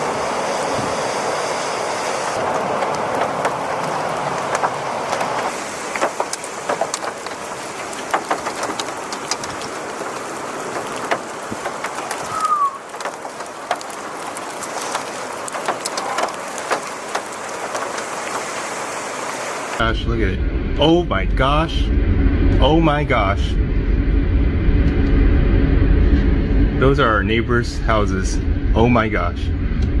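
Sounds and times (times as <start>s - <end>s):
heavy rain: 0.0s - 19.9s
raindrops tapping hard surface: 2.2s - 19.8s
falling whistle: 12.3s - 12.8s.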